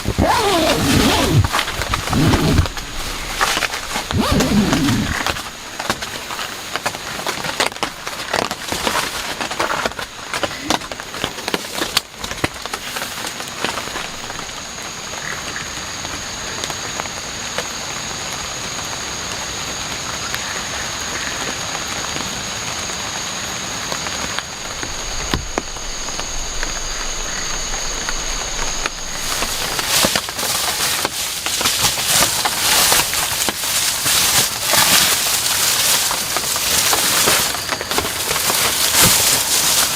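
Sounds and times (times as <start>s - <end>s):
heavy rain falling: 0.0s - 39.9s
sharp drop impacts: 24.5s - 30.3s.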